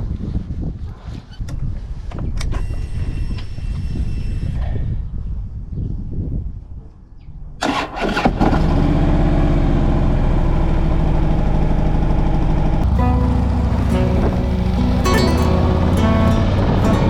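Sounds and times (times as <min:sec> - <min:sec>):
motorcycle engine idling: 0:12.8 - 0:17.0.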